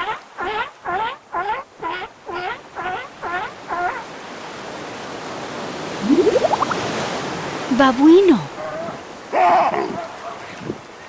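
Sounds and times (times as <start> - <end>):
seal barking: 0.0 - 4.1, 8.5 - 10.9
surf-like water noise: 0.0 - 11.0.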